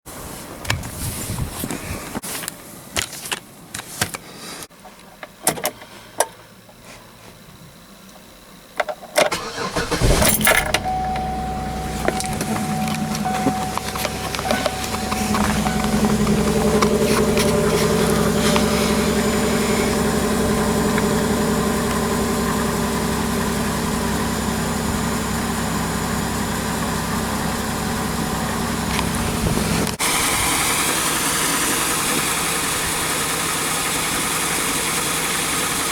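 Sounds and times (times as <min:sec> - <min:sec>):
car engine cranking and idling: 0:08.4 - 0:35.9
thin high whine: 0:10.0 - 0:24.0.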